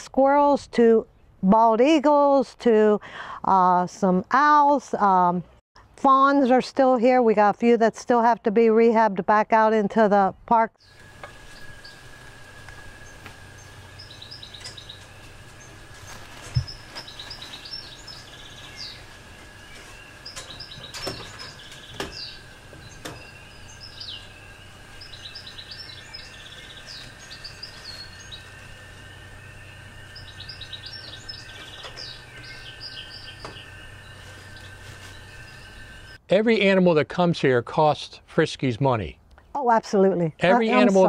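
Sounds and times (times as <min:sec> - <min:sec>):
low hum: 0:10.8 - 0:36.2
small birds chirping: 0:10.8 - 0:36.2.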